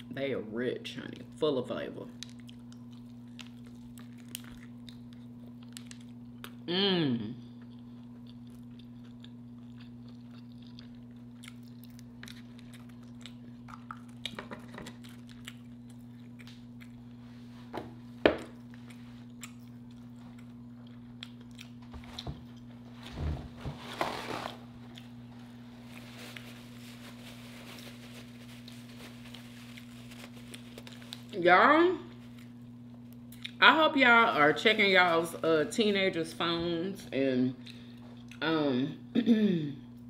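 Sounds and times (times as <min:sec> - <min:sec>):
low electrical hum: 0:00.0 - 0:40.0
chewing and biting: 0:02.2 - 0:06.7, 0:07.6 - 0:17.2, 0:18.4 - 0:22.7.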